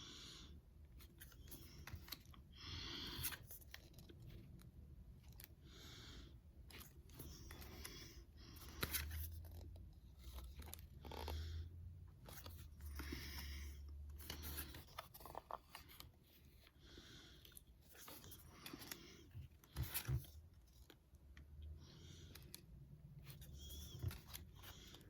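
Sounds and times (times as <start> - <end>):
trading cards rustling and sliding: 1.0 - 25.0.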